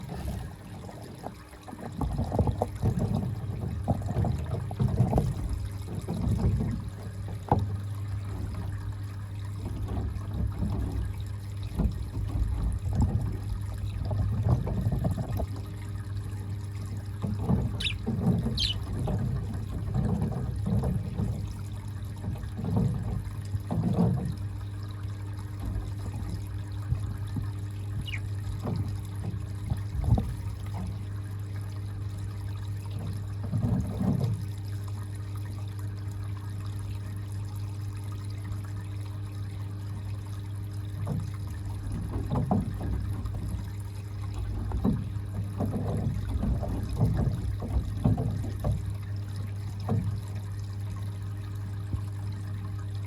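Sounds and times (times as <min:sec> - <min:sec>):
water gurgling and trickling: 0:00.0 - 0:53.0
budgerigar chirps: 0:17.8 - 0:18.9, 0:28.0 - 0:28.3.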